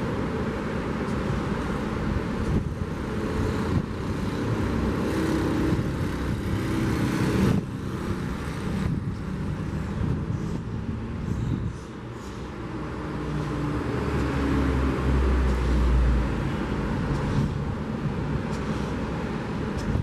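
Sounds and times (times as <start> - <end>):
vehicle engine passing: 2.6 - 11.3.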